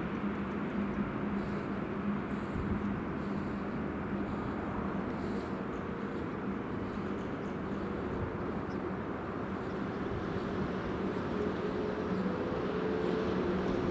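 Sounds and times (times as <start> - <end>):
freight train rumbling past: 0.0 - 13.9.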